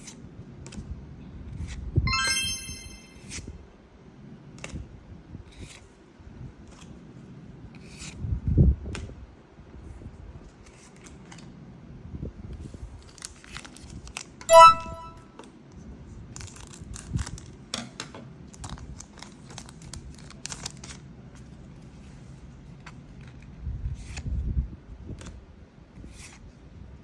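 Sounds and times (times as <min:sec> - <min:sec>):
short bright ringing tone: 0:02.1 - 0:03.3, 0:14.5 - 0:15.2.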